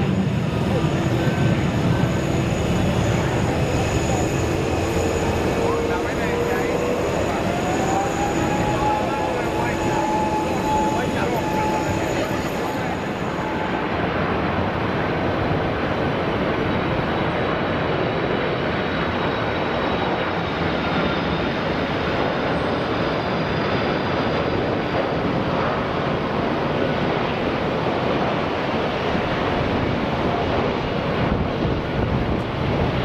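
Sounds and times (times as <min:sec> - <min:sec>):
jet engines roaring: 0:00.0 - 0:33.0
faint high whine: 0:00.1 - 0:15.5.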